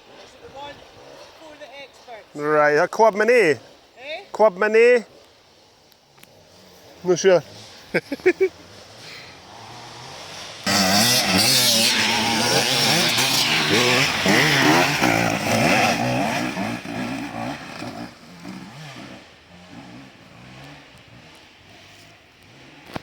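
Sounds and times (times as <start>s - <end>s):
motorcycle engine revving: 6.3s - 23.0s.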